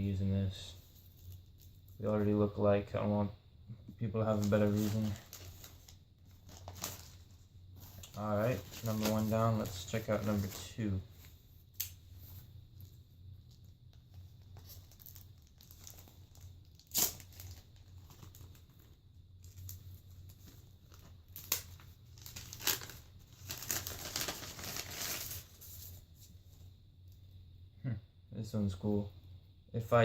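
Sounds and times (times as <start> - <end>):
packaging crinkling: 4.2 - 10.8, 13.5 - 26.0
packaging tearing rustle: 4.2 - 10.8, 14.4 - 26.0
packaging snapping: 14.6 - 18.8, 21.0 - 25.4.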